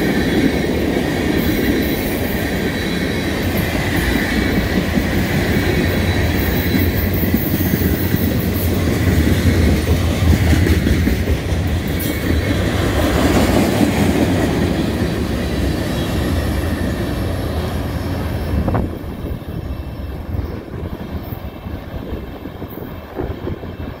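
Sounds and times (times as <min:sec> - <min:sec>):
freight train rumbling: 0:00.0 - 0:24.0.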